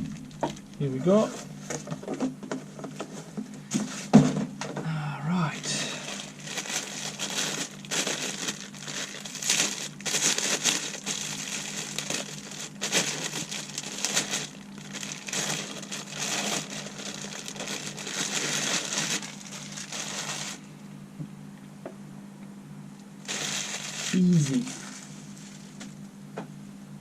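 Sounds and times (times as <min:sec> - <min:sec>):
plastic packaging crinkling: 0:05.6 - 0:20.7, 0:23.2 - 0:26.0.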